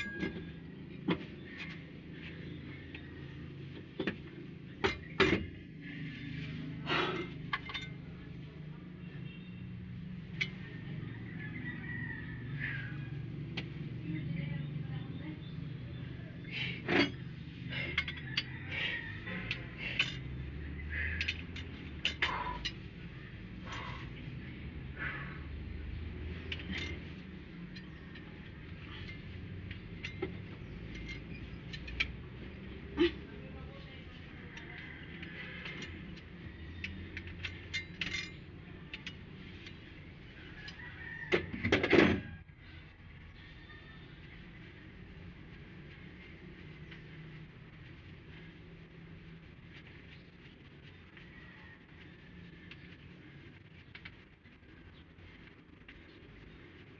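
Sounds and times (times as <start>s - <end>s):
metal tools clinking: 0.0s - 1.8s, 6.9s - 8.1s, 16.8s - 23.0s, 26.2s - 33.3s, 34.1s - 39.8s
low steady hum: 0.0s - 56.9s
metallic tool clinks and knocks: 36.8s - 39.2s.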